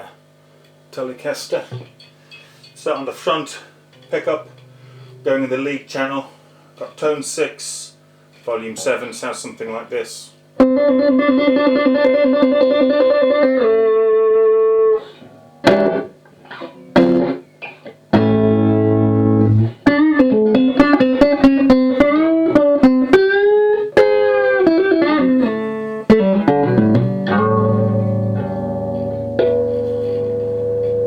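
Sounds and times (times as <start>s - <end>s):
electric guitar through amplifier: 10.6s - 31.0s.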